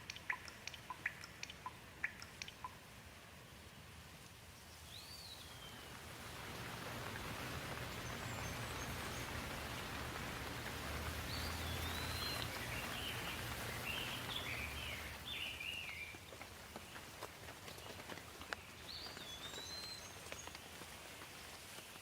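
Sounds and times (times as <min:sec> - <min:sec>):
steady rainfall: 0:00.0 - 0:22.0
songbird warbling: 0:00.1 - 0:02.8, 0:11.1 - 0:16.1.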